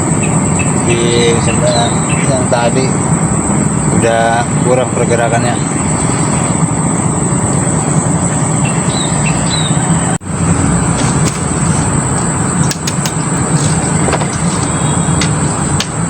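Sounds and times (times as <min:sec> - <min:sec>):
bird chirps: 0:00.0 - 0:02.7, 0:08.5 - 0:10.2, 0:11.0 - 0:16.0
high steady hiss: 0:00.0 - 0:16.0.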